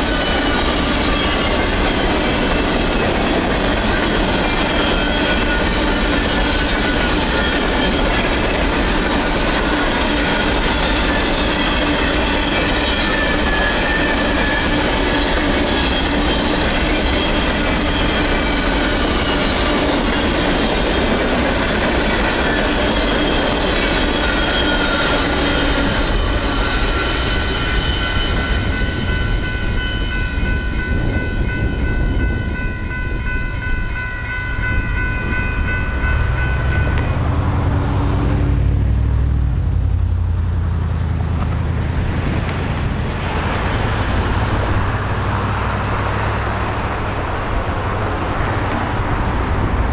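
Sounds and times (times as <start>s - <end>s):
train wheels clattering on rails: 0.0s - 40.2s, 41.2s - 49.9s
electronic crossing bell ringing: 26.7s - 37.8s.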